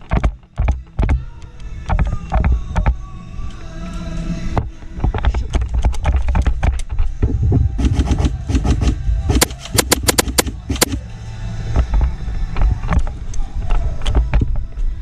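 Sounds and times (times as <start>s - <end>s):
handling and movement rumble: 0.0s - 15.0s
airsoft gunshots: 7.8s - 11.0s.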